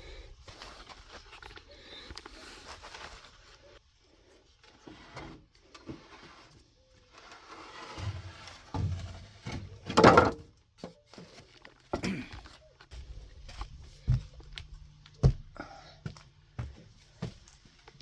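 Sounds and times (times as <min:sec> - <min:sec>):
knocks and scrapes: 0:04.7 - 0:10.5.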